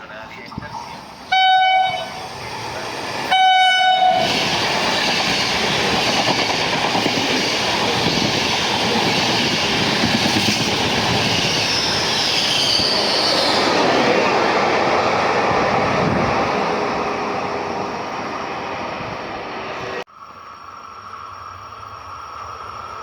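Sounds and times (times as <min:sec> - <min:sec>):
train wheel and rail noise: 0:00.0 - 0:23.0
train horn blast: 0:01.3 - 0:02.2, 0:03.3 - 0:04.4.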